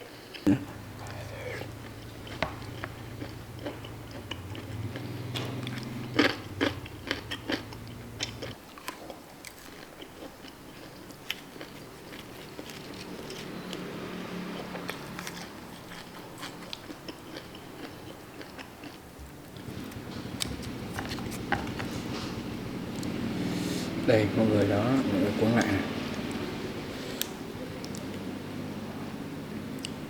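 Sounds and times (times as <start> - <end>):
person chewing crunchy food: 0.3 - 23.8.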